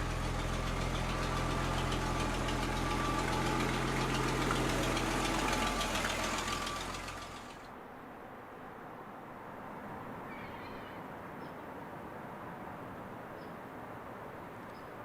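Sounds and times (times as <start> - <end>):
pickup engine idling: 0.0 - 7.7.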